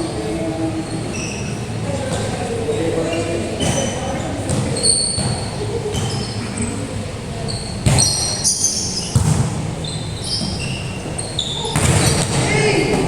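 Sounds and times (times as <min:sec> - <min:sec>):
murmur of voices: 0:00.0 - 0:13.0
shoes squeaking on gym floor: 0:03.1 - 0:06.8, 0:07.4 - 0:13.0
basketball bouncing: 0:04.5 - 0:06.2, 0:09.1 - 0:09.7, 0:11.6 - 0:13.0.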